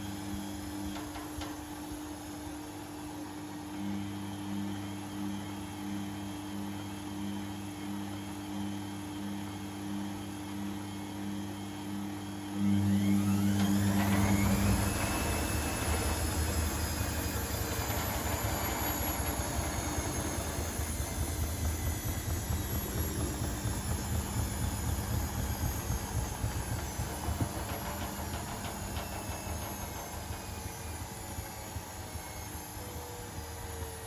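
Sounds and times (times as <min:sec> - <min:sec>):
washing machine motor whine: 0:00.0 - 0:34.0
washing machine rumble: 0:12.7 - 0:34.0.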